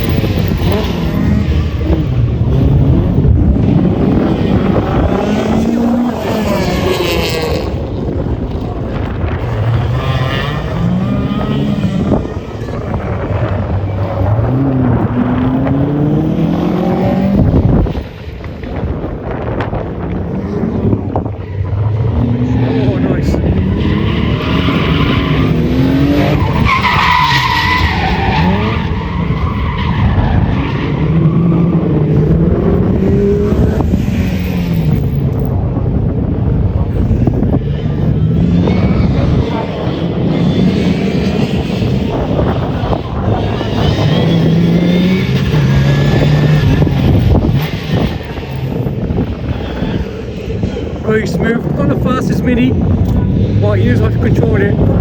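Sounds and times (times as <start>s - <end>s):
rally car engine accelerating: 0.0s - 55.0s.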